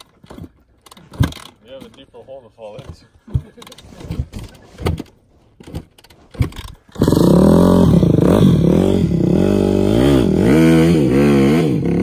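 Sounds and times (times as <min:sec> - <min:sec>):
off-road vehicle engine revving: 0:06.3 - 0:12.0.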